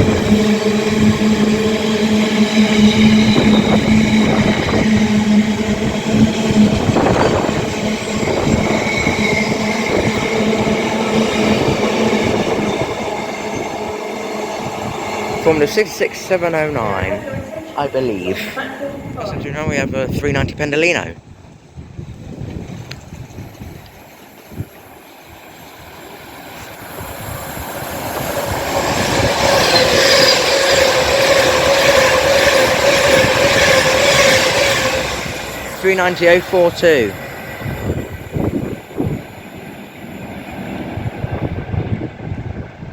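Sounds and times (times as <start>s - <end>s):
freight train wheels on rails: 0.0s - 42.9s.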